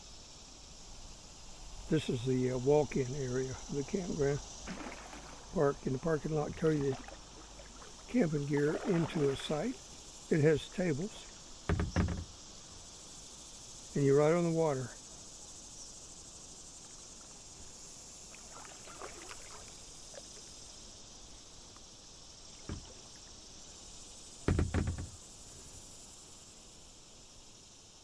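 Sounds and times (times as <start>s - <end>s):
steady high hiss: 0.0s - 28.0s
paddle strokes and drips: 2.8s - 12.9s, 16.7s - 25.8s
paddle knocking on kayak hull: 4.7s - 10.0s, 11.7s - 12.4s, 22.6s - 23.2s, 24.5s - 25.2s.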